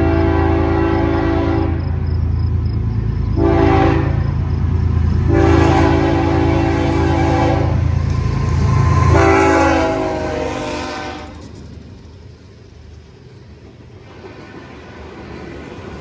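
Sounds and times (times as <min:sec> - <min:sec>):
locomotive air horn blasts: 0:00.0 - 0:02.0, 0:03.4 - 0:04.4, 0:05.2 - 0:11.4
low locomotive engine rumble: 0:00.0 - 0:16.0
train rolling rumble: 0:00.0 - 0:16.0.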